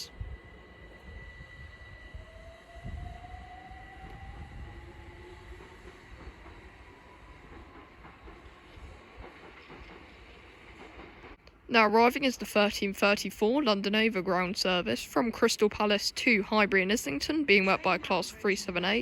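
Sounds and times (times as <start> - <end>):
electric train motor whine: 0.0 - 7.7
low train rumble: 0.0 - 19.0.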